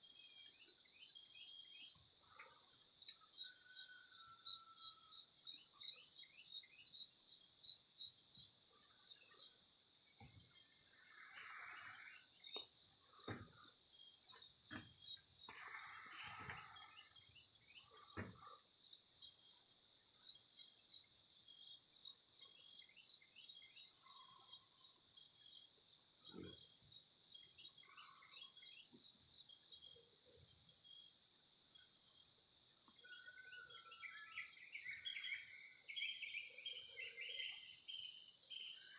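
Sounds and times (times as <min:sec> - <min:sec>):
faint bird chirps: 0:00.0 - 0:19.6, 0:20.3 - 0:31.4, 0:32.8 - 0:38.9
low bird calls: 0:11.0 - 0:12.3.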